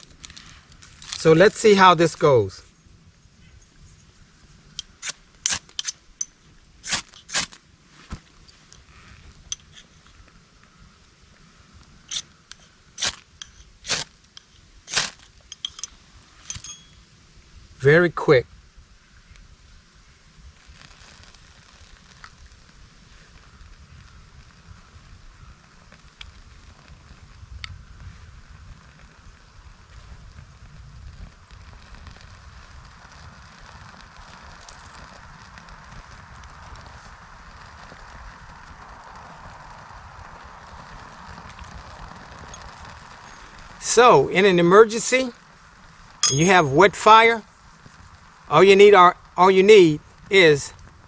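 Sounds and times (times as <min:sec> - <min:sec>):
fire crackling: 0:00.0 - 0:17.7, 0:18.6 - 0:51.0
sharp pops from fire: 0:04.7 - 0:10.1, 0:12.1 - 0:15.8.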